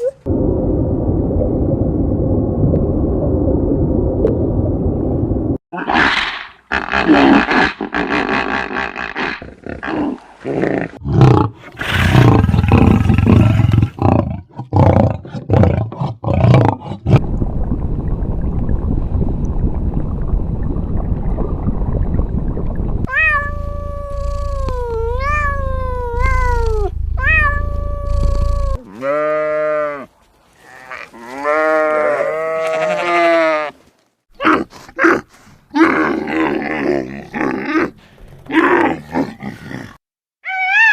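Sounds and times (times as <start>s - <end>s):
low rumbling noise: 0.3s - 5.6s, 17.1s - 28.8s.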